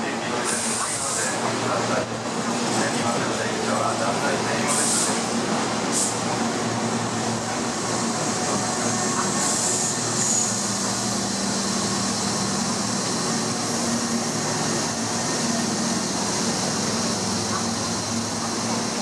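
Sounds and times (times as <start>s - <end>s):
electric train rumbling: 0.0s - 19.0s
brief high squeal: 9.6s - 10.9s.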